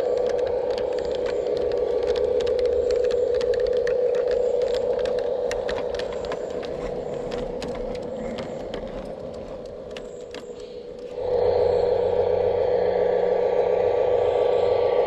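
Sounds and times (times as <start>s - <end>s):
wheels clicking over rail joints: 0.0s - 11.6s.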